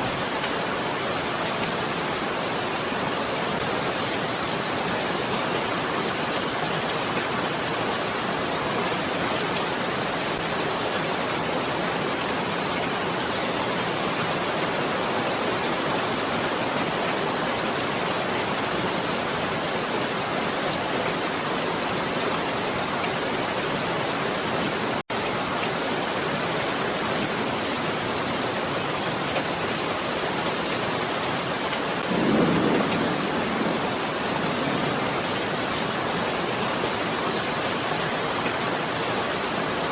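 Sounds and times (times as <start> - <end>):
rain hissing: 24.8 - 39.8
low thunder rumble: 32.0 - 35.9.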